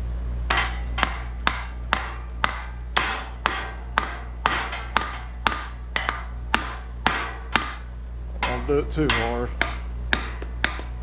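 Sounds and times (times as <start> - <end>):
hammer tapping engine casing: 0.5 - 11.0.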